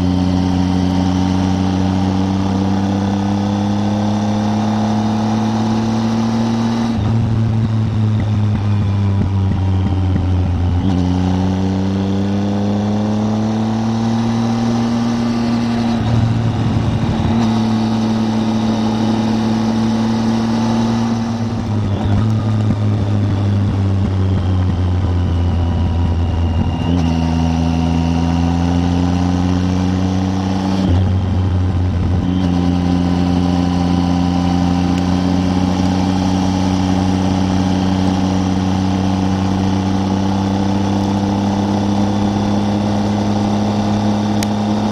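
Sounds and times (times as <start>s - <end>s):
motorcycle engine accelerating: 0.0s - 44.9s.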